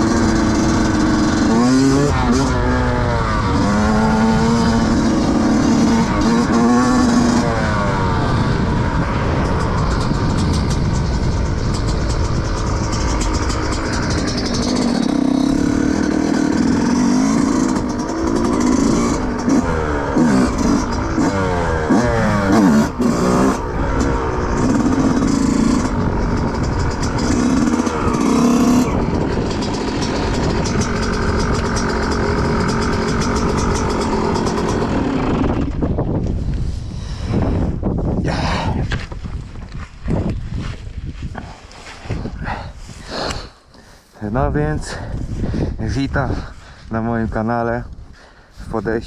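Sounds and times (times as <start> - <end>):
motorcycle engine revving: 0.0 - 46.6.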